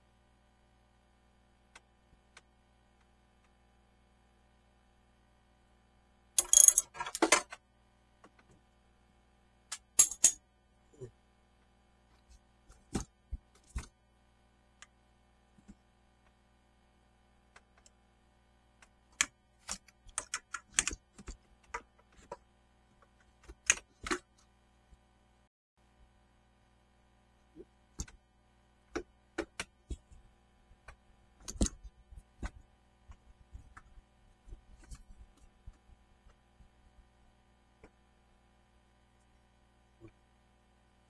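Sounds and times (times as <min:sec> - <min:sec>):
metal tools clicking and clattering: 0:06.4 - 0:07.6, 0:10.0 - 0:10.4.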